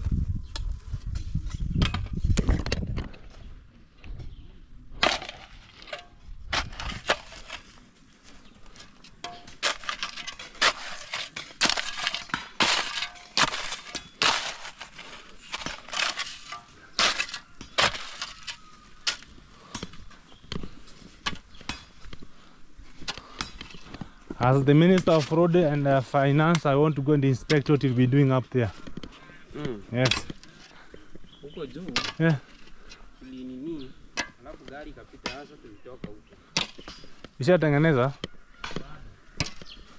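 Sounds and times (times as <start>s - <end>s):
stones and gravel crunching: 4.9s - 26.7s, 36.0s - 39.9s.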